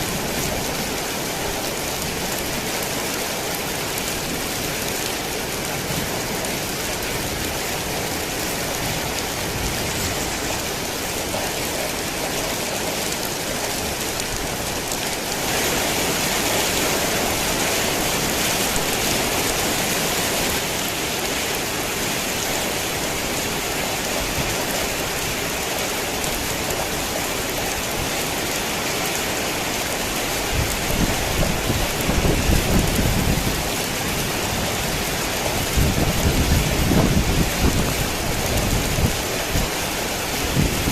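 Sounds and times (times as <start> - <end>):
heavy rain falling: 0.0 - 40.9
low rolling thunder: 30.5 - 39.3.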